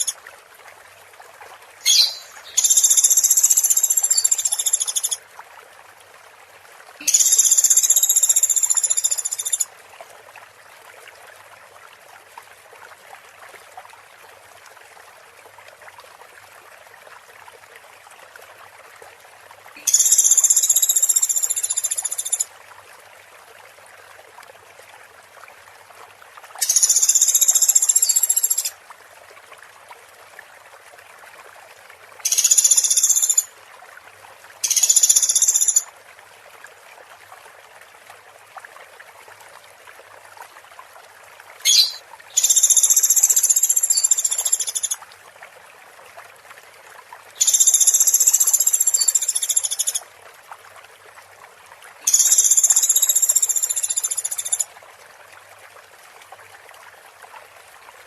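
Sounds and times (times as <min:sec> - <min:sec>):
running water: 0:00.0 - 0:58.0
high buzzy bird trills: 0:01.8 - 0:05.1, 0:41.6 - 0:44.8.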